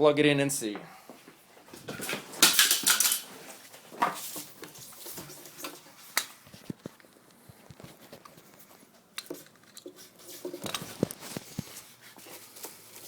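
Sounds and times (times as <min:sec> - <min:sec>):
clatter of hard objects: 0:01.8 - 0:03.4.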